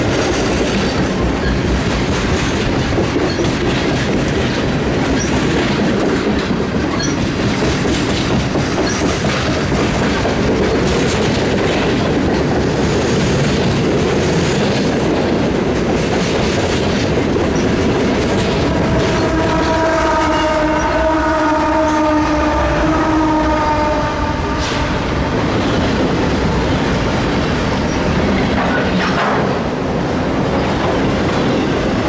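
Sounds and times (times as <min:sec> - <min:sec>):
wheels clacking over rails: 0:00.0 - 0:20.9, 0:24.8 - 0:32.0
freight train rumbling: 0:00.0 - 0:32.0
held many-pitched horn tone: 0:18.6 - 0:25.4.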